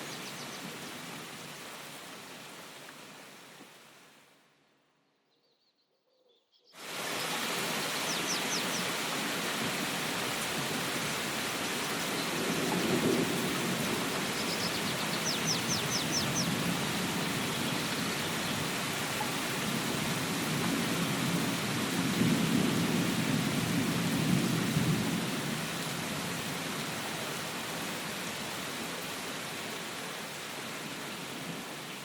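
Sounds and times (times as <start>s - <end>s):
heavy rain: 0.0s - 4.4s, 6.8s - 32.0s
bird chirping: 5.2s - 6.8s.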